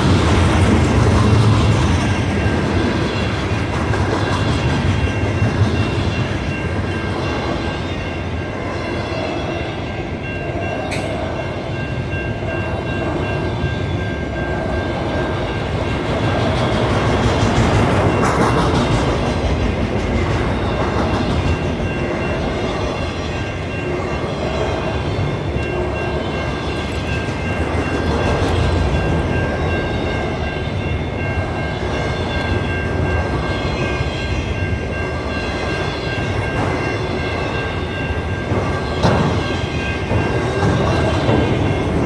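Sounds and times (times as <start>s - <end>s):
wheels clickety-clack: 0.0s - 7.6s, 15.6s - 23.0s, 25.6s - 30.4s, 38.1s - 42.0s
freight train wheels rumbling: 0.0s - 42.0s.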